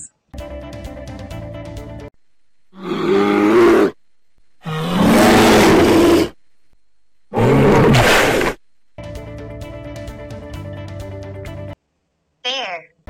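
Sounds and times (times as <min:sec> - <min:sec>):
bear roaring: 0:02.8 - 0:04.0, 0:04.6 - 0:06.4, 0:07.3 - 0:08.6.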